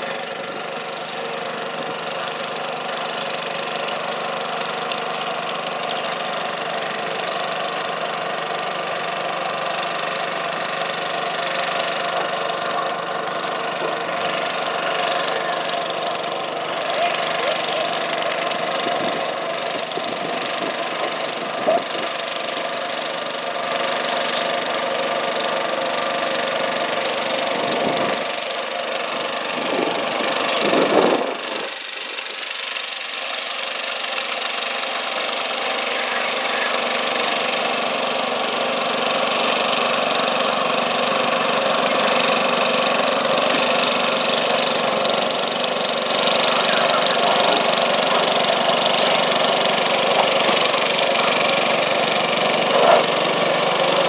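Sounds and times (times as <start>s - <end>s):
garden tractor engine running: 0.0s - 54.0s.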